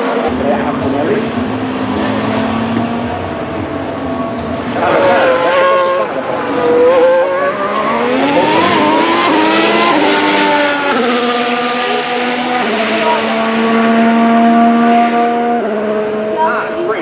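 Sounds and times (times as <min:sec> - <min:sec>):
racing car engine running: 0:00.1 - 0:17.0.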